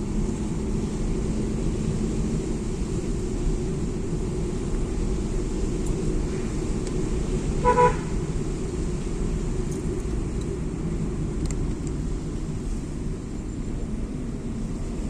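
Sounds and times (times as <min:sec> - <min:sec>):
vehicle rumbling on road: 0:00.0 - 0:15.0
short horn toot: 0:07.6 - 0:08.1.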